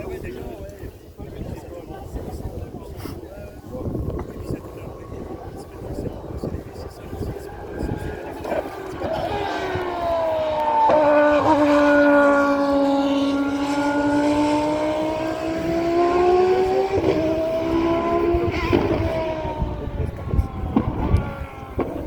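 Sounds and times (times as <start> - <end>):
rough low rumbling: 1.4 - 22.0
race car engine at high revs: 3.7 - 22.0.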